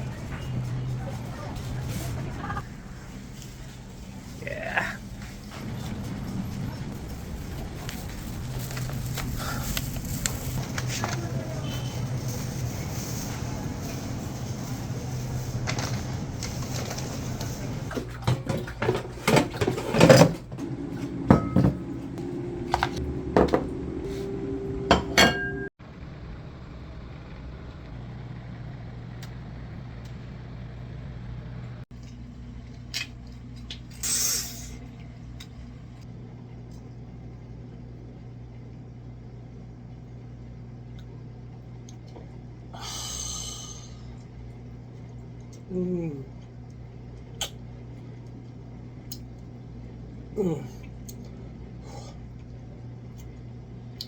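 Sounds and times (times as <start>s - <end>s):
steady low hum: 0.0s - 54.0s
dishes and cutlery clinking: 24.9s - 25.7s.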